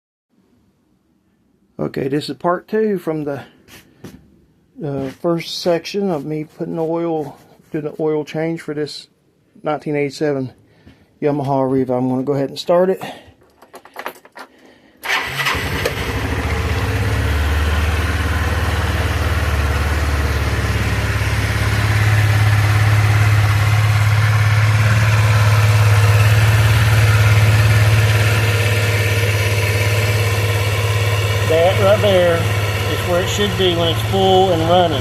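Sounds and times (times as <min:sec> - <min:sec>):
scooter engine starting and idling: 0:15.0 - 0:35.0.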